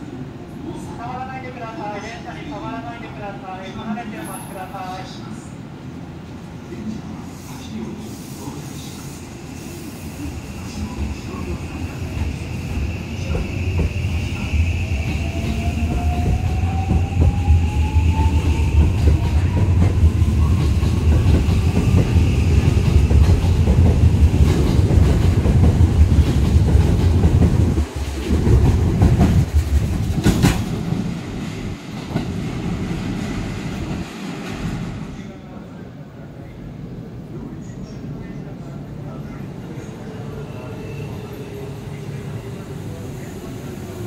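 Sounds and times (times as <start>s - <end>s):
train rumble: 10.2s - 35.2s.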